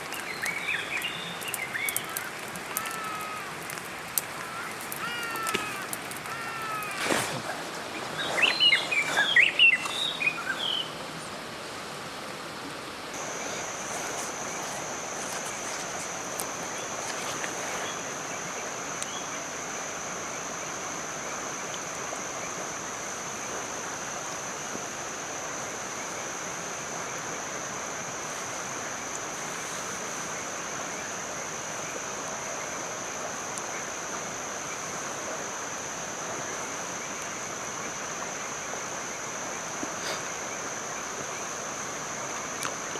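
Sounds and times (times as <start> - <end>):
steady rain hiss: 0.0 - 42.9.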